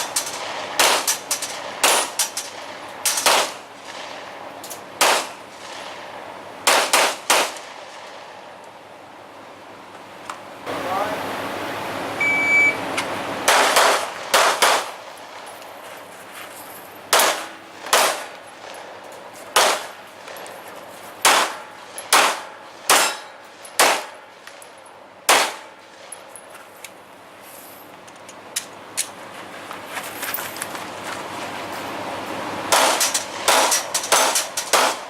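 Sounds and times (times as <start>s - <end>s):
gunshots: 0.4s - 4.3s, 5.0s - 8.3s, 13.5s - 15.0s, 17.1s - 18.8s, 19.5s - 20.4s, 21.2s - 24.2s, 25.3s - 25.7s, 32.7s - 35.0s
steel targets ringing: 21.2s - 26.4s.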